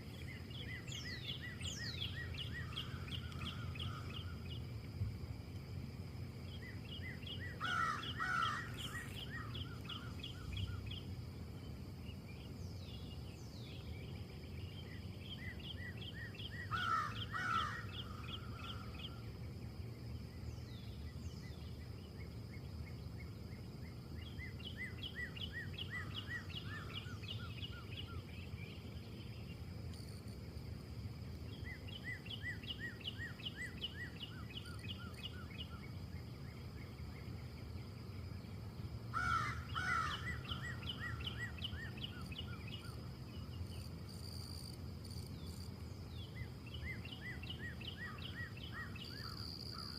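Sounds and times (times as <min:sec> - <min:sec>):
small birds trilling: 0:06.5 - 0:11.1, 0:39.2 - 0:43.9.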